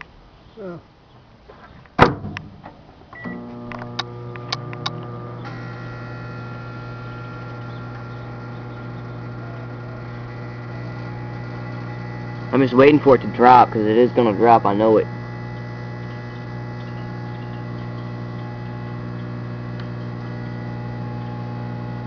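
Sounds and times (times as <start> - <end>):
loud clunk: 2.0 - 2.8
microwave oven humming: 3.2 - 22.0
sharp clicks: 3.6 - 5.6.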